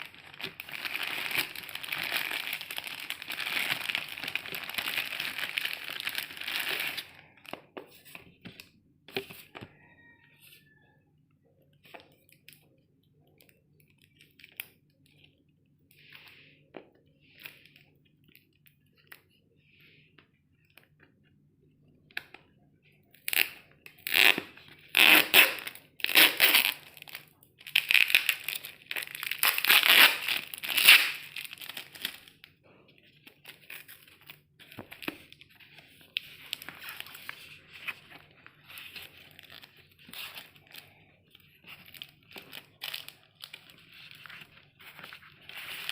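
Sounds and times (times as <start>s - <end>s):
packaging crinkling and tearing: 0.0s - 7.6s, 23.2s - 32.5s, 33.3s - 45.9s.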